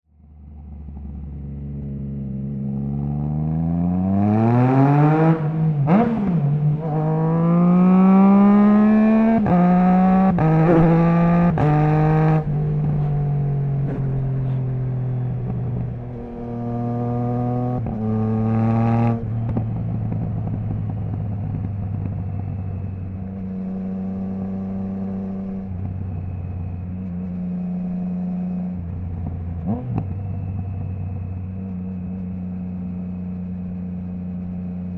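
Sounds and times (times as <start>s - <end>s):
motorcycle engine accelerating: 0.1s - 34.9s
quick gear upshifts: 4.1s - 28.0s.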